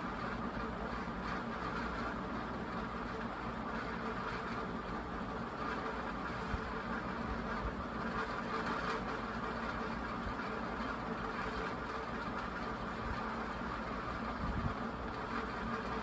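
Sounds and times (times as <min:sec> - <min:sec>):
fan motor hum: 0:00.0 - 0:16.0
rush of air from fan: 0:13.0 - 0:16.0.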